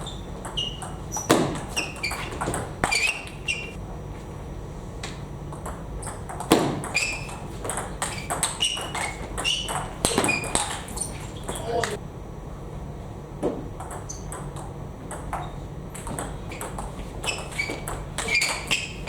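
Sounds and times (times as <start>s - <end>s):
loud knocks: 0.0s - 3.0s, 6.3s - 11.6s.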